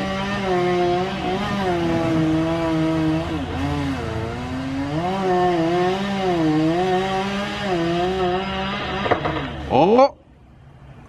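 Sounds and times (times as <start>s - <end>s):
chainsaw engine under load: 0.0s - 9.8s.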